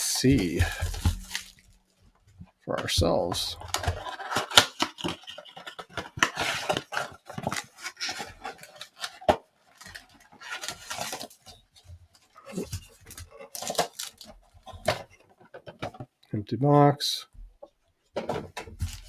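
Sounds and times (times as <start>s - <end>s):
packaging rustling and crinkling: 0.0s - 2.0s, 3.1s - 16.0s.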